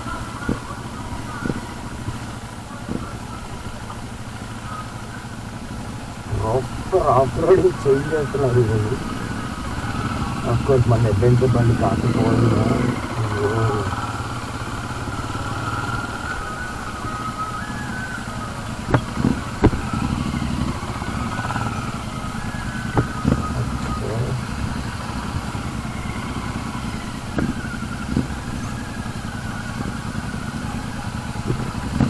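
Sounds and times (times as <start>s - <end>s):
motorcycle engine running: 0.0s - 32.0s
sharp engine knocks: 18.7s - 28.9s, 31.3s - 32.0s.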